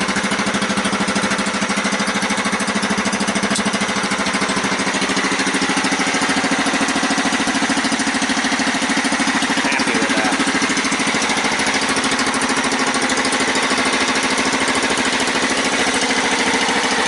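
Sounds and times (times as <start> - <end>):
dragster engine running: 0.0 - 17.0.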